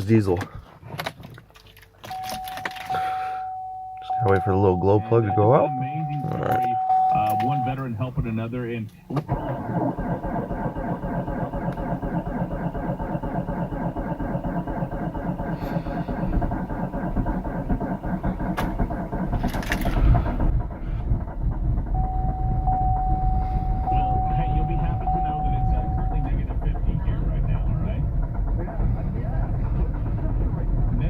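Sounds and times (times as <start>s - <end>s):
steady high tone: 2.1s - 8.1s, 22.0s - 26.7s
diesel car engine running: 2.1s - 31.0s.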